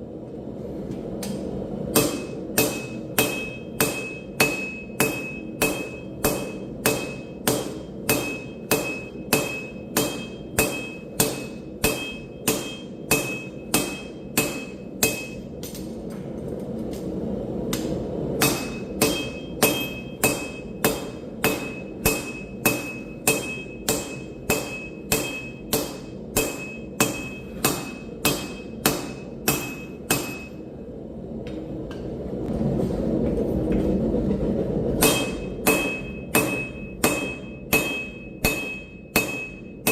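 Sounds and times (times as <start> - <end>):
hammer on anvil: 1.9 - 16.0, 17.7 - 30.6, 35.0 - 39.9
anvil ringing: 2.0 - 15.5, 18.4 - 30.6, 35.0 - 39.9.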